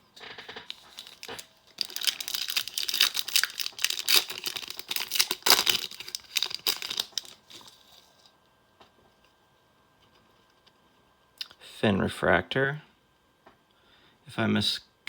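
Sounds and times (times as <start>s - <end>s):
plastic wrapper crinkling and tearing: 0.3s - 8.3s.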